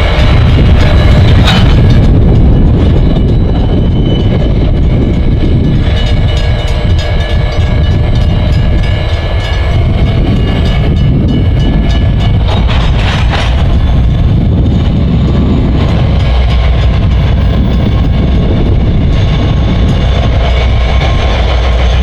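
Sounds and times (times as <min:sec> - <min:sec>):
diesel train rumbling: 0:00.0 - 0:22.0.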